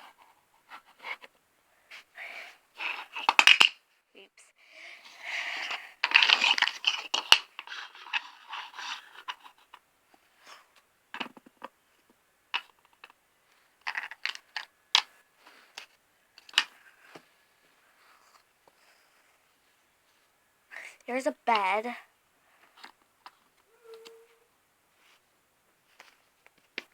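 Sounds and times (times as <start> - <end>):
rustling scrape of plastic toys: 1.9 - 3.6, 5.0 - 11.4, 15.4 - 20.2
plastic pieces clicking and tapping: 3.0 - 3.8, 5.6 - 9.8, 13.8 - 16.8.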